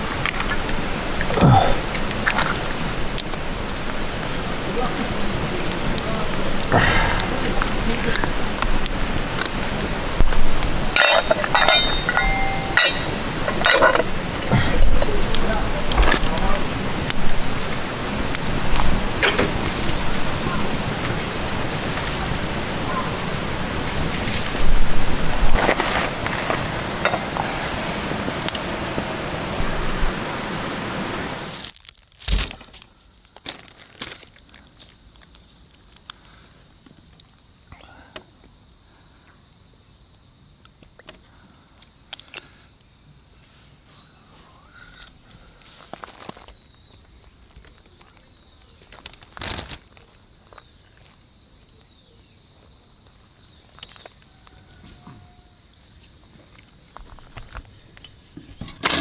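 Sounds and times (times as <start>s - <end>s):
dense steady hiss: 0.0s - 59.0s
insects chirring: 0.0s - 59.0s
faint clicks and crackles: 0.1s - 22.9s.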